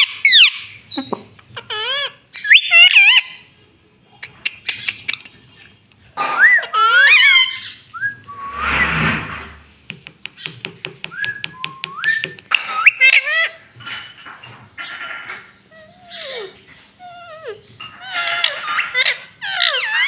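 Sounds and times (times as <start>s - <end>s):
parakeet harsh chatter: 6.2s - 7.8s, 17.9s - 20.0s.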